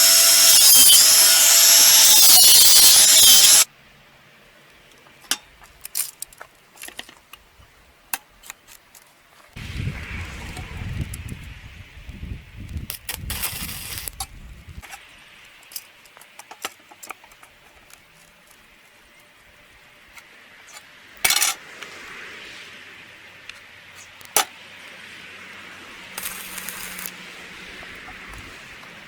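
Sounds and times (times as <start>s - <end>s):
metal tools clinking: 20.7s - 21.6s.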